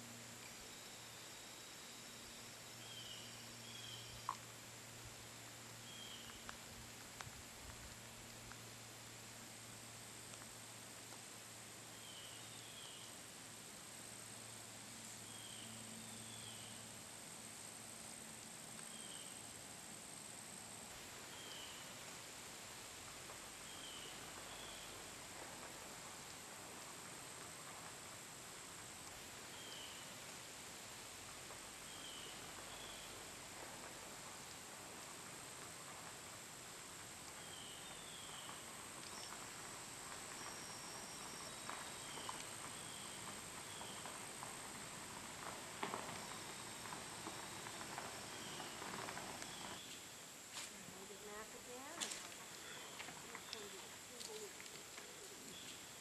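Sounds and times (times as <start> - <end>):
soft hiss: 0.0 - 56.0
high insect drone: 36.4 - 56.0.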